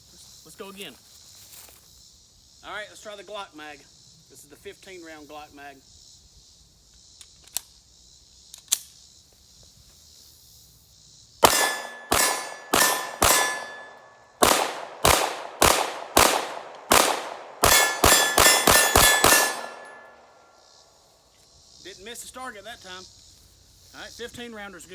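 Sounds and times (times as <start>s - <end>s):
pistol shots: 11.4s - 20.2s
steel target clanging: 11.4s - 20.3s.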